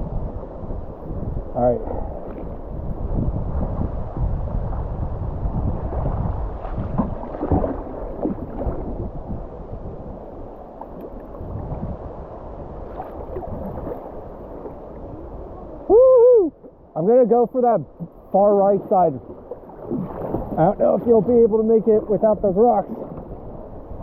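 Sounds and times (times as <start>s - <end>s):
water splashes: 5.6s - 12.1s, 12.7s - 15.9s, 18.0s - 24.0s.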